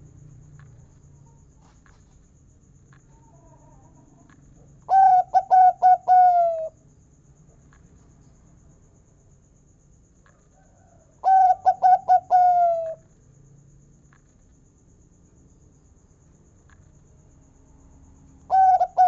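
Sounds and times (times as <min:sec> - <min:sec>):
dove cooing: 0:04.9 - 0:06.8, 0:11.2 - 0:13.0, 0:18.5 - 0:19.0.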